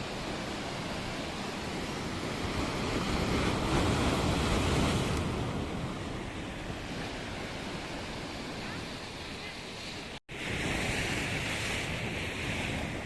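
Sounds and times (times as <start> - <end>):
sea waves breaking on shore: 0.0 - 13.0.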